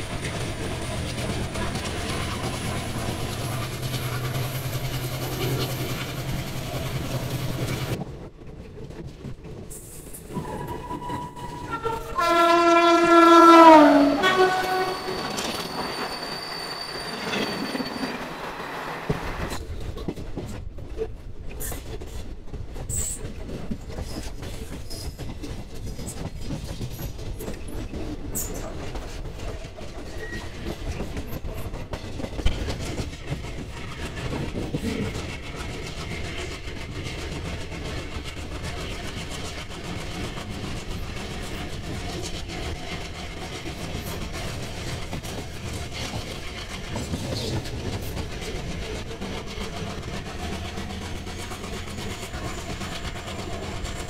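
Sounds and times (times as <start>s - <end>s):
diesel locomotive hum: 0.0s - 8.0s, 10.2s - 16.6s
train wheels rumbling on rails: 0.0s - 54.0s
high wheel squeals: 13.1s - 19.5s.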